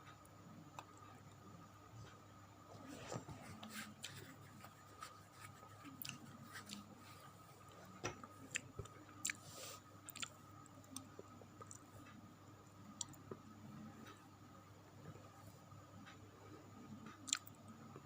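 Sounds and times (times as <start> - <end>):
person chewing: 3.7 - 7.1, 8.5 - 9.4, 10.1 - 10.3.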